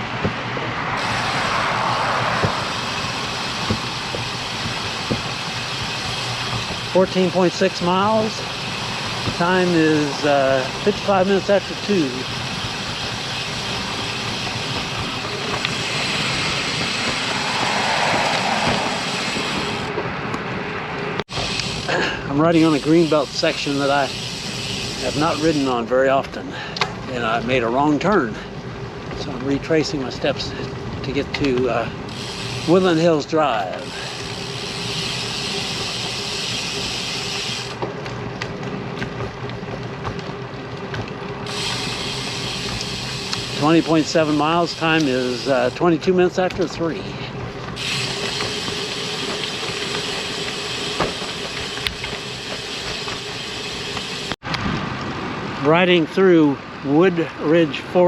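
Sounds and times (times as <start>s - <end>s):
bicycle tyres hissing: 0.0s - 20.0s, 21.3s - 27.1s, 31.7s - 40.2s, 40.8s - 54.4s
wind rushing on microphone: 14.6s - 21.2s.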